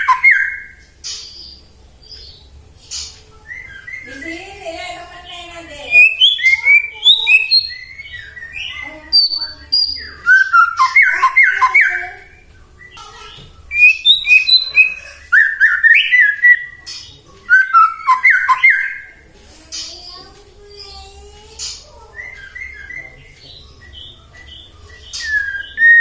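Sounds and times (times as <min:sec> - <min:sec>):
bird singing whistles and squawks: 0:00.0 - 0:01.6, 0:05.9 - 0:19.2, 0:21.6 - 0:26.0.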